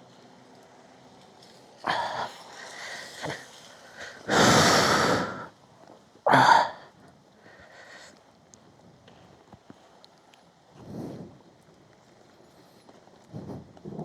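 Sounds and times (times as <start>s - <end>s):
person exhaling heavily: 1.8s - 3.4s, 4.0s - 5.5s, 6.3s - 8.1s.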